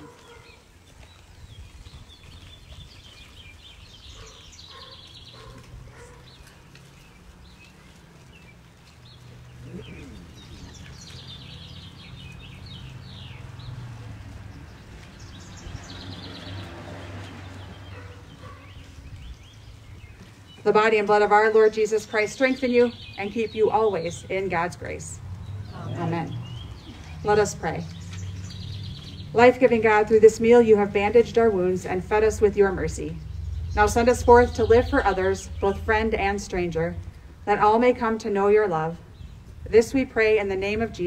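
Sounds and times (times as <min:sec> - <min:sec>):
small birds chirping: 0:00.0 - 0:41.0
low outdoor rumble: 0:05.3 - 0:41.0.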